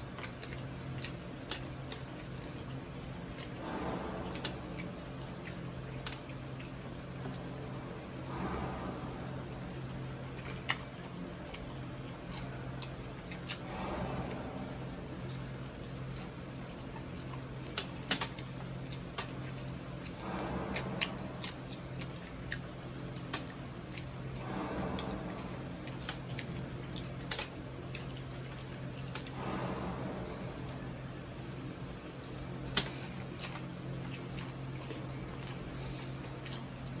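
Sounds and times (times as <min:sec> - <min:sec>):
crunchy chewing: 0:00.0 - 0:08.2, 0:15.2 - 0:29.5, 0:32.4 - 0:37.0
low hum: 0:00.0 - 0:37.0.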